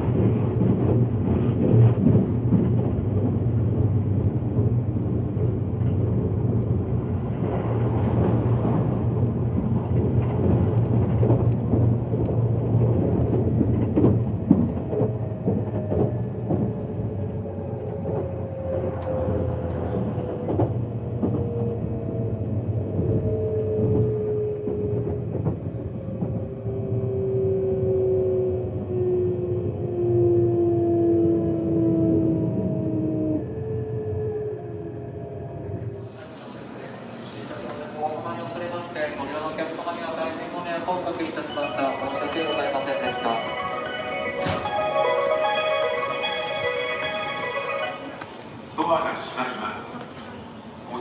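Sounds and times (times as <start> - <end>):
clacks over rail joints: 0.0 - 17.0
train interior rumble: 0.0 - 51.0.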